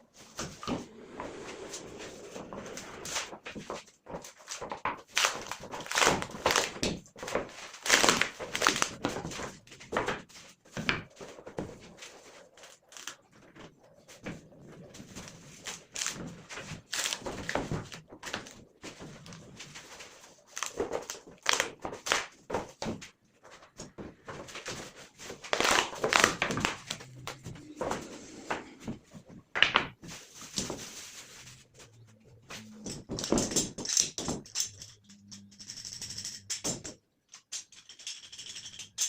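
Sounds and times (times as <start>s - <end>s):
wood scraping: 0.1s - 4.7s, 23.4s - 35.4s.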